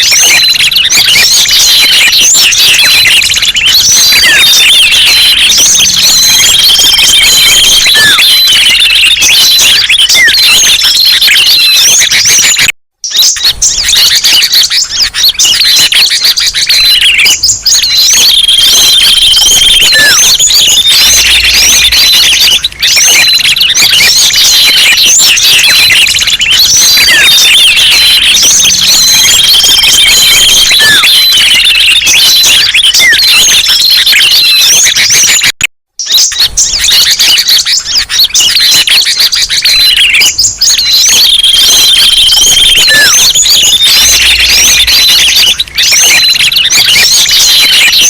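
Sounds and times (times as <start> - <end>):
songbirds chirping and twittering: 0.0 - 48.0.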